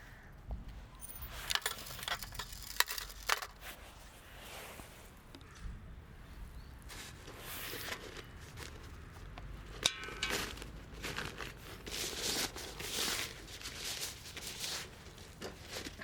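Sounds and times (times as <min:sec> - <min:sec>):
rustling and crinkling: 0:00.5 - 0:16.0.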